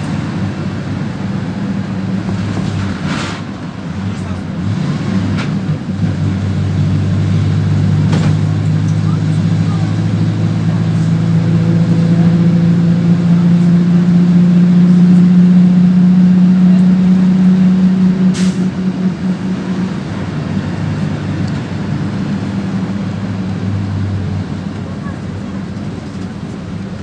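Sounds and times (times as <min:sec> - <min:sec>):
bus engine humming: 0:00.0 - 0:27.0.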